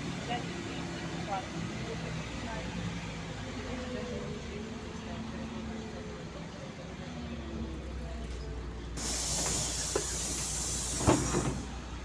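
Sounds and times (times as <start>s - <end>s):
bus engine idling: 0.0s - 12.0s
compressed air hissing: 9.0s - 12.0s.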